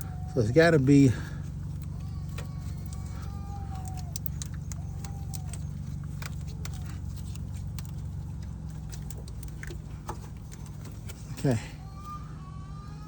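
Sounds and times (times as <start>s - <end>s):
car engine idling: 0.0s - 13.0s
light clicks: 1.4s - 11.6s.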